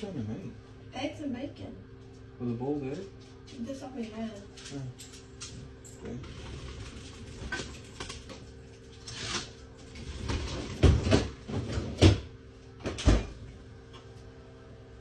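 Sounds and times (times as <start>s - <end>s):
steady low hum: 0.0s - 15.0s
kitchen knocks and bangs: 10.7s - 12.3s.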